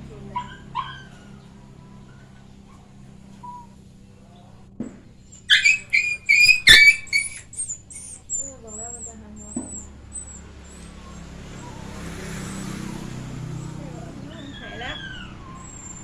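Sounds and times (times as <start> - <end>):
puppy yelping and squealing: 0.3 - 3.8, 5.3 - 16.0
thump: 4.8 - 5.1.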